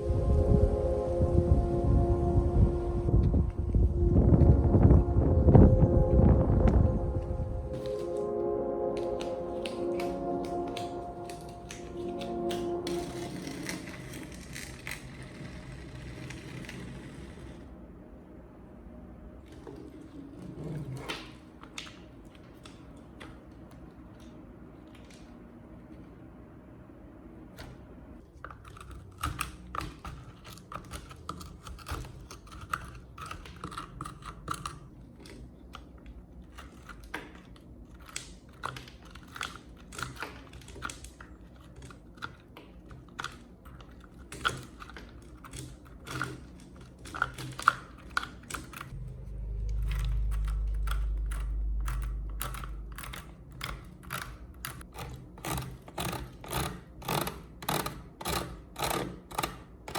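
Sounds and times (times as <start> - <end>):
steady low rumble: 0.0 - 15.0, 48.9 - 54.8
tools and parts clicking: 49.6 - 59.9.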